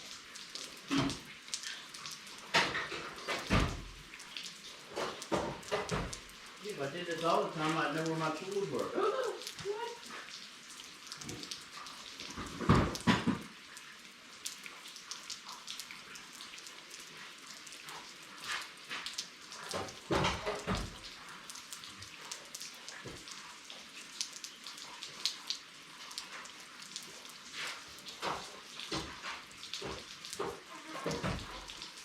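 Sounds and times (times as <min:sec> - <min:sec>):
steady rain falling: 0:00.0 - 0:32.0
water drips ticking: 0:00.0 - 0:32.0
knocks and thumps of objects moved: 0:00.9 - 0:01.2, 0:02.5 - 0:04.0, 0:04.9 - 0:06.3, 0:12.3 - 0:13.5, 0:19.7 - 0:21.0, 0:28.2 - 0:31.7.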